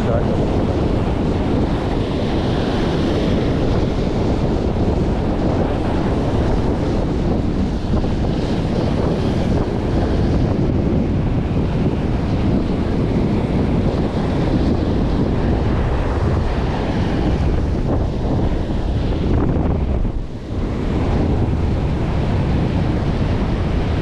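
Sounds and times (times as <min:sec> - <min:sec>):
surf washing on beach: 0:00.0 - 0:24.0
wind buffeting microphone: 0:00.0 - 0:24.0.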